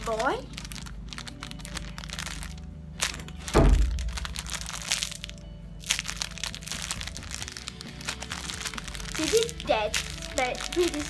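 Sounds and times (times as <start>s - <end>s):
heavy thump: 3.5s - 4.2s.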